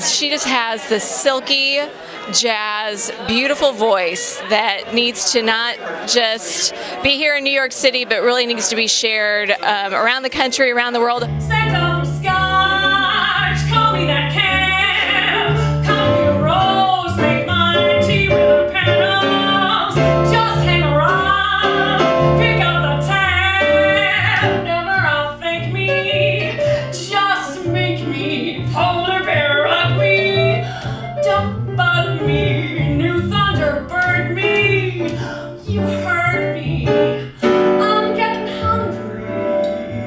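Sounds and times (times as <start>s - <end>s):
woman singing jazz: 0.0s - 40.0s
low bass line: 11.2s - 19.3s, 19.9s - 26.9s
small jazz band: 11.2s - 40.0s.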